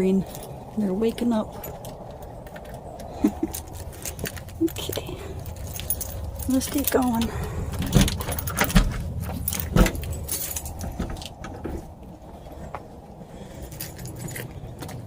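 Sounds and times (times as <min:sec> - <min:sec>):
keys jingling: 0:01.5 - 0:11.6, 0:13.4 - 0:15.0.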